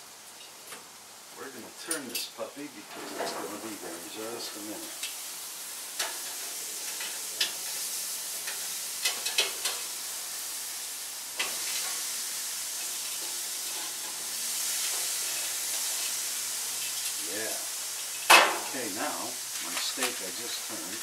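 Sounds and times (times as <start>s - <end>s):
steak sizzling on a grill: 0.0s - 21.0s
metal utensil clicking on grill: 6.0s - 9.9s, 11.4s - 12.0s.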